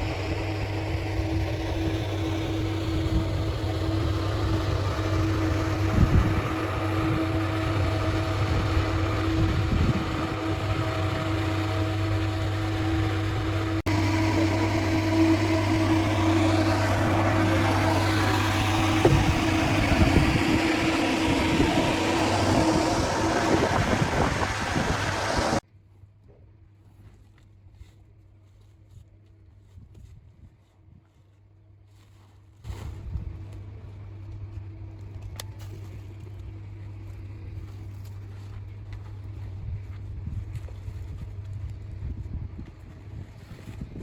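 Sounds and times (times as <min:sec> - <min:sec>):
machinery droning: 0:00.0 - 0:25.6
motor hum: 0:00.0 - 0:25.6, 0:32.7 - 0:44.0.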